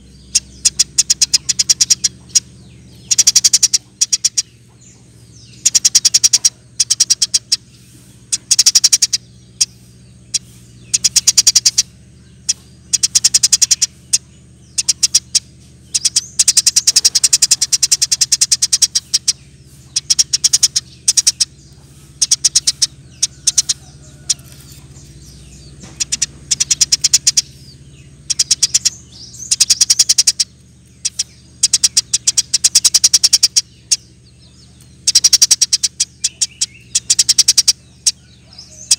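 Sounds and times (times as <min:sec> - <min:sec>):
sparrow chattering chirps: 0:00.0 - 0:38.9.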